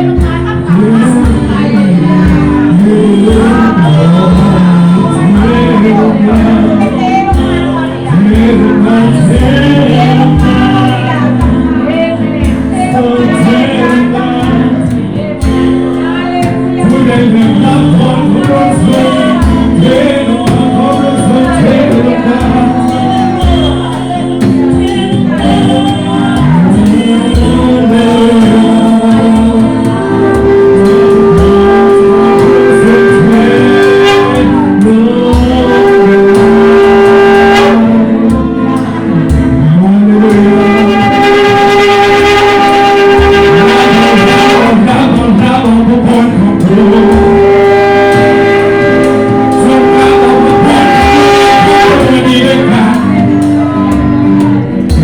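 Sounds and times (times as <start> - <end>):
gospel song with band: 0.0 - 55.0.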